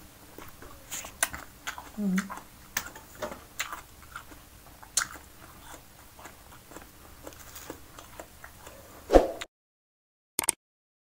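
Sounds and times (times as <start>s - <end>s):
person chewing soft food: 0.0s - 9.0s
wet mouth clicks: 4.9s - 5.8s.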